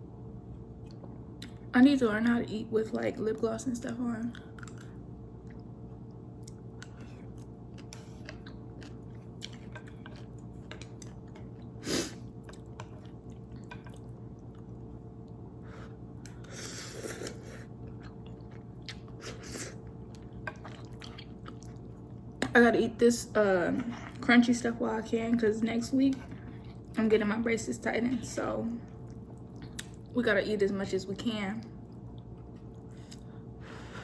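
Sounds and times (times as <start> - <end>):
steady low hum: 0.0 - 34.0
chewing noodles: 4.3 - 22.5, 26.1 - 27.0, 31.7 - 33.4.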